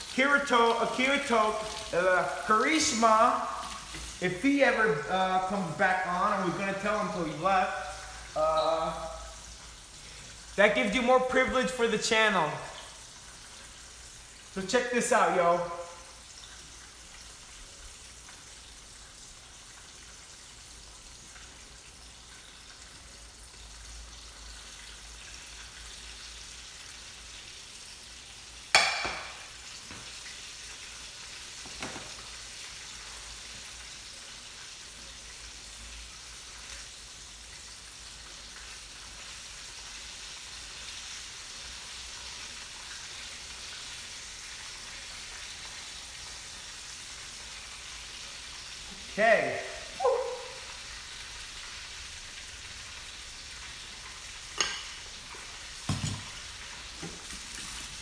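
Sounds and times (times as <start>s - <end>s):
chicken sizzling in hot oil: 0.0s - 58.0s
sharp knock: 28.8s - 29.5s.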